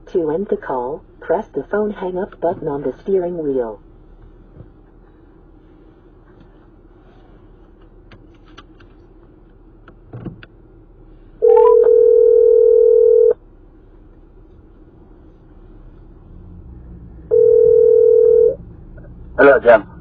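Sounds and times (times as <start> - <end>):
low cabin hum: 0.0 - 20.0
telephone ringback tone: 11.4 - 13.4, 17.3 - 18.6.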